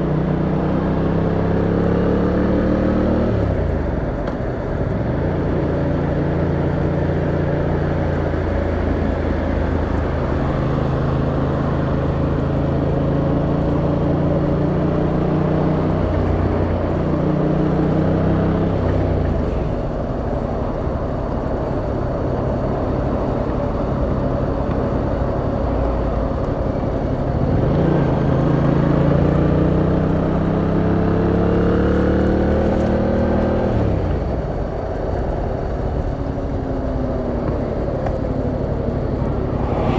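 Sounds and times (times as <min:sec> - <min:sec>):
motorcycle engine accelerating: 0:38.7 - 0:39.9.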